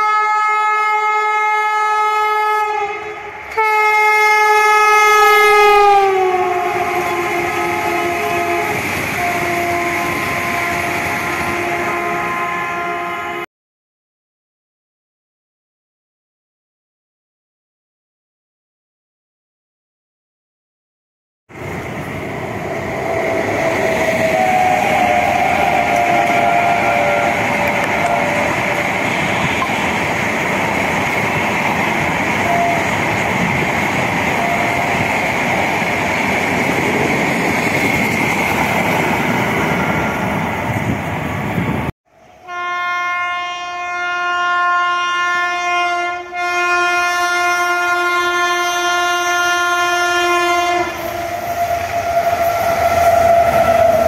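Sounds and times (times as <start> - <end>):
locomotive horn blast: 0.0 - 13.5, 23.5 - 29.8, 32.4 - 33.0, 34.4 - 34.9, 42.3 - 54.0
train rumbling past: 3.1 - 13.4, 21.5 - 54.0.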